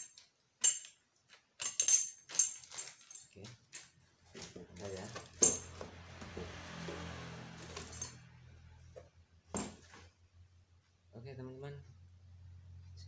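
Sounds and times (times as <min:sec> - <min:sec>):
metal wrenches clinking: 0:00.0 - 0:05.8, 0:07.6 - 0:08.2.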